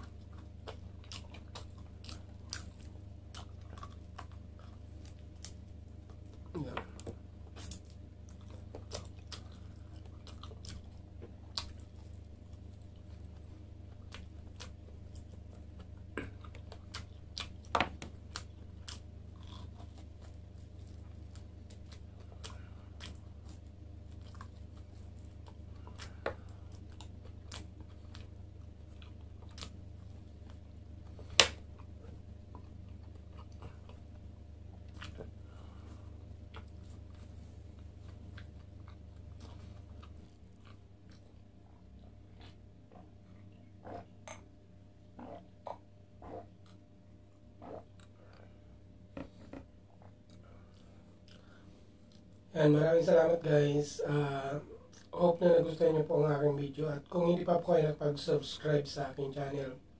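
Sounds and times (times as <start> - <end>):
chewing and biting: 0.0 - 52.5
steady low hum: 0.0 - 59.9
mouth clicks and smacks: 36.4 - 48.5.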